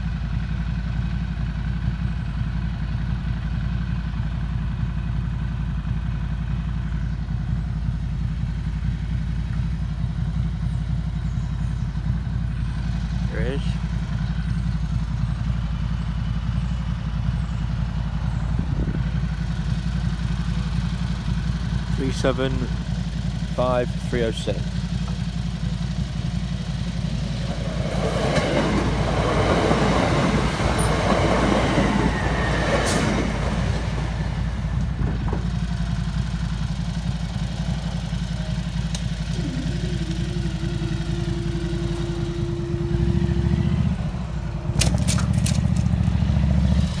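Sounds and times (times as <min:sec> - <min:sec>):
electric train passing: 0:26.2 - 0:44.9.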